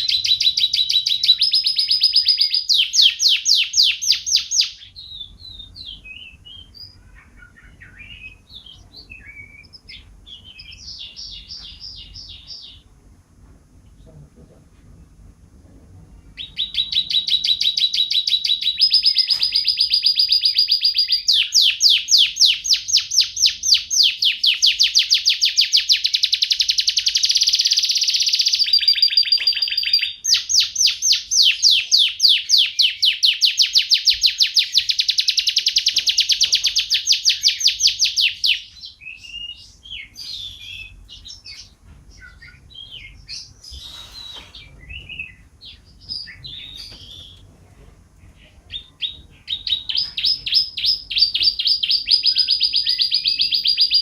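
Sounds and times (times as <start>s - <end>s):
bird chirps: 0.0s - 12.9s, 16.3s - 47.4s, 48.3s - 54.0s
songbird singing fast trills: 16.4s - 47.4s.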